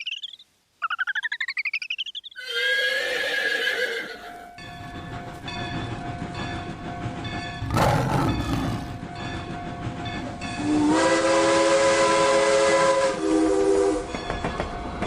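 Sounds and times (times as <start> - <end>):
horse whinnying: 2.4 - 4.4, 7.6 - 9.0
train rumbling: 4.3 - 15.0.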